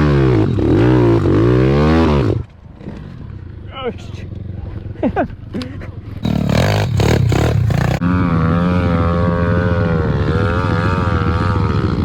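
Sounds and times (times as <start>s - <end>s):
small motorbike engine revving high: 6.2s - 12.0s.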